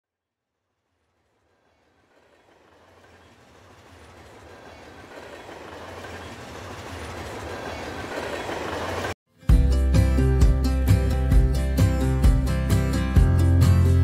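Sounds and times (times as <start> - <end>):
train rumbling along track: 0.7 - 9.2.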